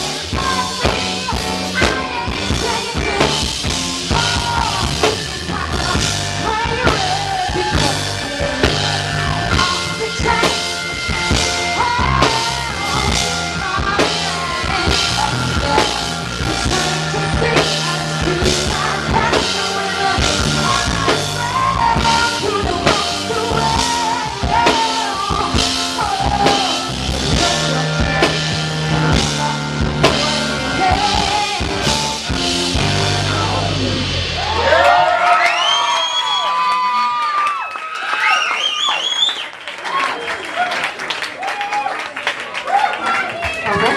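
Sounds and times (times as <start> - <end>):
person singing: 0.0 - 34.2
drum kit beat: 0.0 - 36.0
live rock band playing: 0.0 - 37.3, 43.4 - 43.9.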